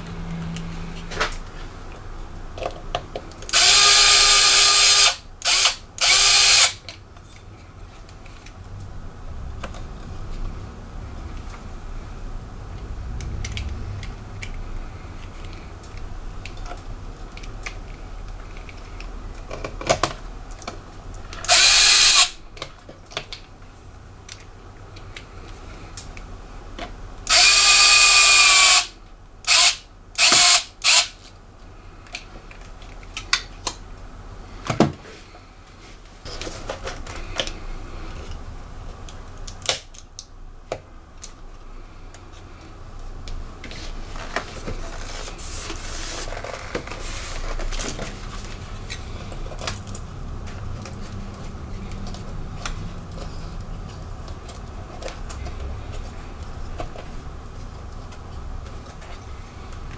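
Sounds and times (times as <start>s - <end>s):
electric screwdriver running: 3.5s - 6.8s, 21.4s - 22.4s, 27.3s - 31.2s.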